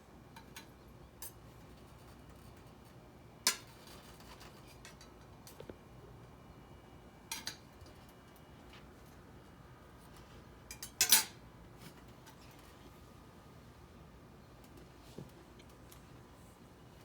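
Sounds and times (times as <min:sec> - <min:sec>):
cutlery clattering on a plate: 0:10.7 - 0:11.4
cutlery scraping a plate: 0:10.7 - 0:12.6.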